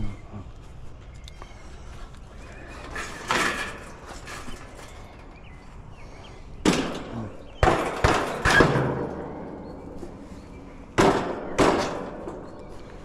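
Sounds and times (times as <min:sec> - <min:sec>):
sharp knocks and clunks: 0:06.6 - 0:10.2, 0:10.9 - 0:12.6.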